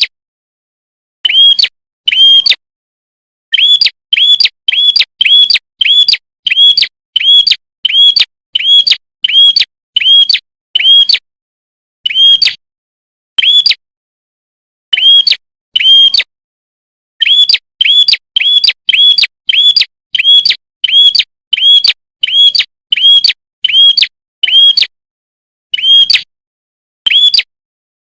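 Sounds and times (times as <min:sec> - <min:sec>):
bird chirping: 0:01.2 - 0:02.6, 0:03.5 - 0:11.2, 0:12.0 - 0:12.6, 0:13.4 - 0:13.8, 0:14.9 - 0:16.3, 0:17.2 - 0:24.9, 0:25.7 - 0:26.3, 0:27.1 - 0:27.5.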